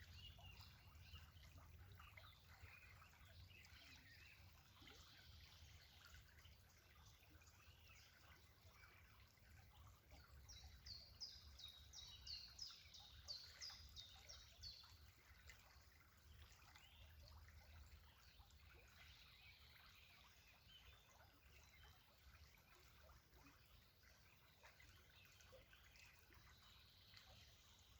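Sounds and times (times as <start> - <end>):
songbird singing: 0.0 - 6.2, 10.4 - 15.1
trickle of running water: 0.0 - 27.9.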